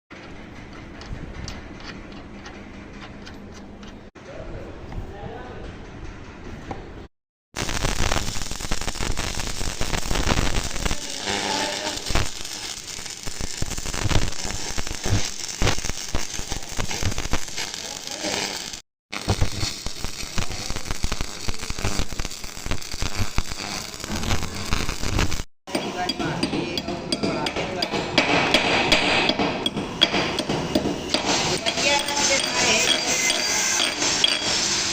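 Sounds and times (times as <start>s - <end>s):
arc welding crackle and sputter: 7.6s - 34.9s.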